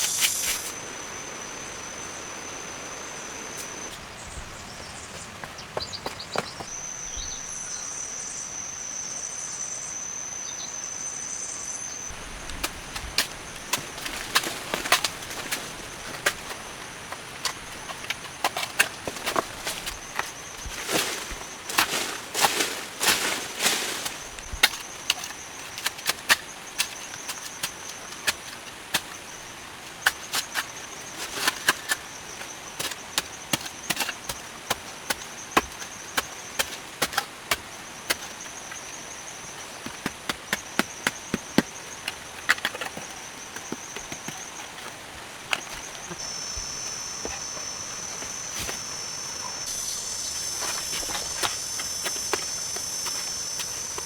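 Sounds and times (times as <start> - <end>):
high-pitched insect trill: 0.0 - 3.9, 45.6 - 54.0.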